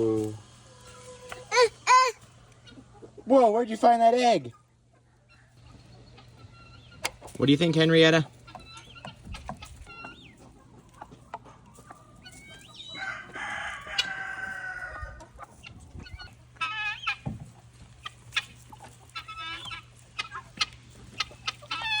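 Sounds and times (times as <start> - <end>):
chickens clucking: 0.0 - 22.0
rooster crowing: 12.7 - 15.3.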